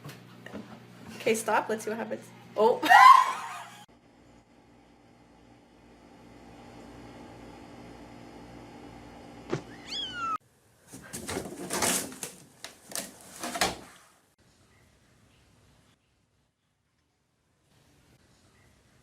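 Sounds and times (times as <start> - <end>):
cat meowing: 9.7 - 10.4.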